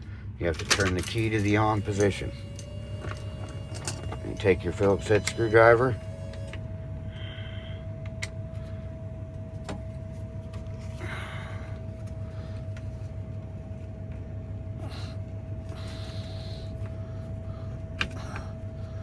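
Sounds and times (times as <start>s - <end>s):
steady hum: 0.0s - 19.0s
screwdriver clicks and scraping: 0.6s - 6.6s.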